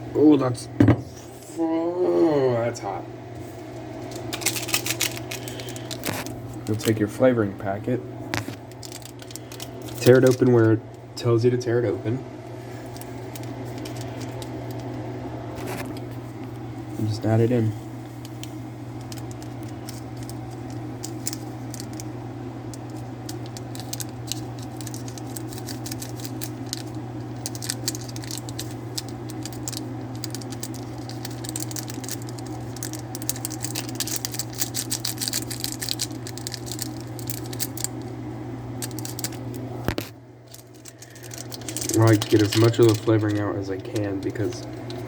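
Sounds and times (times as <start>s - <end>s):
steady low hum: 0.0s - 45.0s
plastic packet crinkling: 4.0s - 7.1s, 8.3s - 11.0s, 12.8s - 14.9s, 18.1s - 22.1s, 22.7s - 38.1s, 38.8s - 45.0s.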